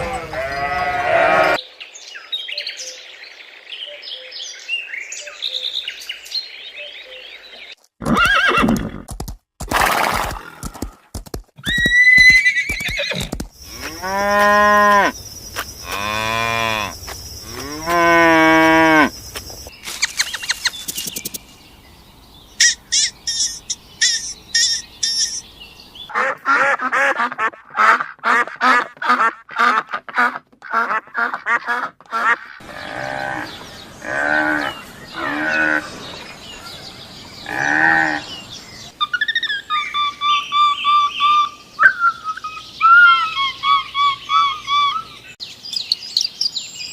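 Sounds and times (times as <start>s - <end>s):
farm animal calls: 0.0s - 1.6s.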